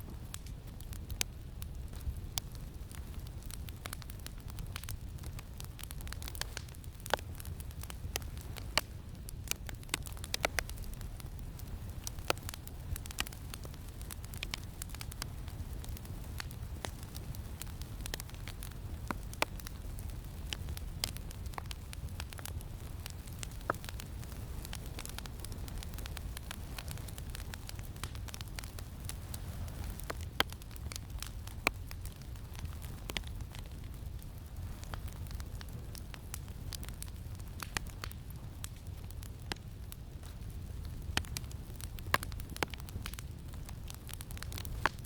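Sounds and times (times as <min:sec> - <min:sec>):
campfire crackling and popping: 0:00.0 - 0:45.0
low rumble of wind: 0:00.0 - 0:45.0.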